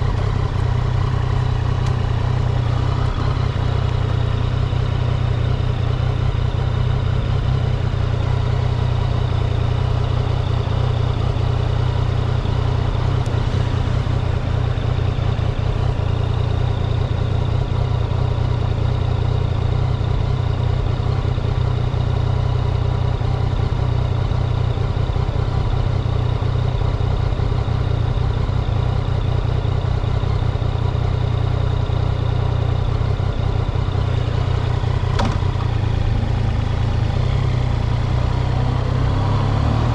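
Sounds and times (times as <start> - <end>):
engine idling: 0.0 - 39.6.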